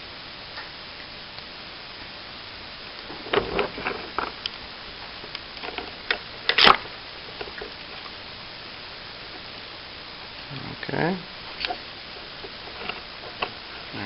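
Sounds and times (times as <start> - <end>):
faint hiss: 0.0 - 14.0.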